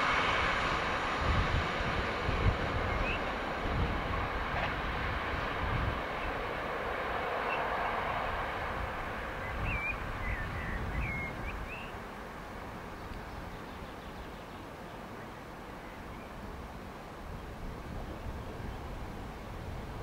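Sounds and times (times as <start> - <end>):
train rumbling on track: 0.0 - 20.0
bird chirping: 9.4 - 12.0.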